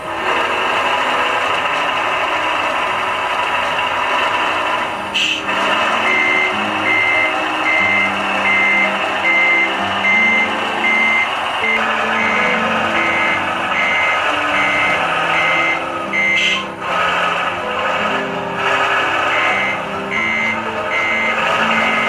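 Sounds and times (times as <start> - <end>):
reversing alarm beeps: 5.2 - 17.3, 18.0 - 22.0.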